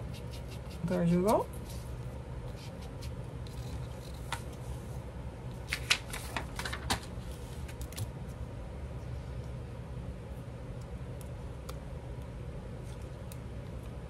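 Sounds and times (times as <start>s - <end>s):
steady low hum: 0.0s - 14.0s
paper rustling: 5.6s - 8.0s.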